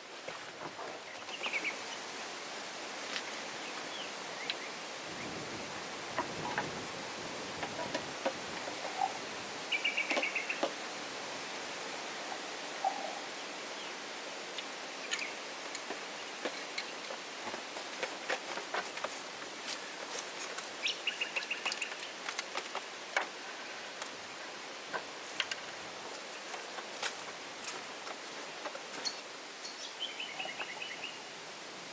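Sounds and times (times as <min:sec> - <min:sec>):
outdoor hiss: 0:00.0 - 0:31.9
birds chirping: 0:00.6 - 0:02.1, 0:07.6 - 0:10.8, 0:14.9 - 0:17.1, 0:20.4 - 0:22.3, 0:28.4 - 0:31.3.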